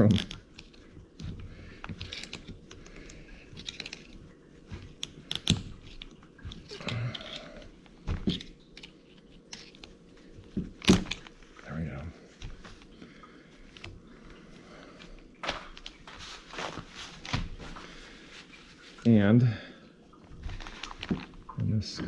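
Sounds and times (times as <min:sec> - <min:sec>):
hand tools clicking and scraping: 0:00.0 - 0:10.0.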